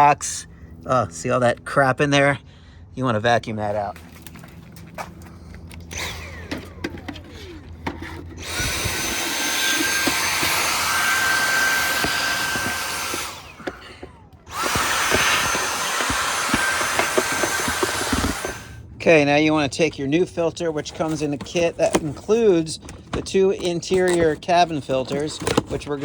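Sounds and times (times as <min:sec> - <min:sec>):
vacuum cleaner whining: 0:04.7 - 0:18.9.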